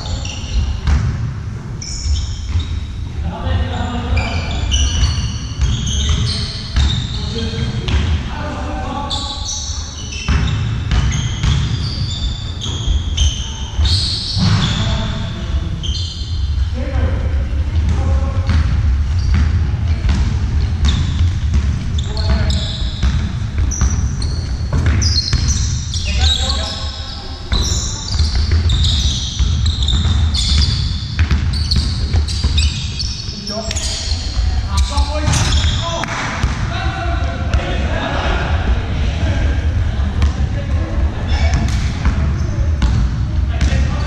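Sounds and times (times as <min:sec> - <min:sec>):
shoes squeaking on floor: 0:00.0 - 0:00.8, 0:01.8 - 0:03.0, 0:03.7 - 0:07.8, 0:09.0 - 0:16.6, 0:19.1 - 0:36.0
low rumble of hall: 0:11.7 - 0:44.0
ball bouncing: 0:17.7 - 0:26.4, 0:27.5 - 0:36.7, 0:41.4 - 0:43.9.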